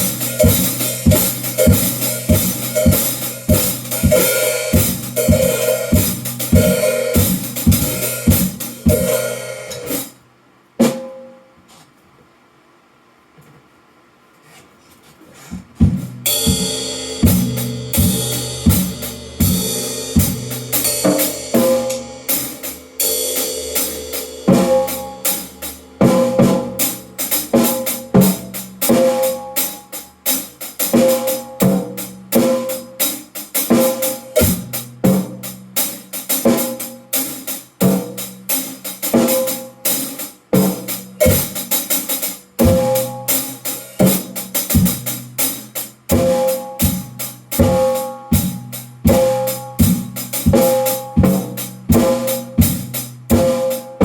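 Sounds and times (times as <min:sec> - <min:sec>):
drum kit playing: 0:00.0 - 0:10.2, 0:10.8 - 0:11.4, 0:15.6 - 0:54.0
cymbal crashes: 0:16.3 - 0:29.4.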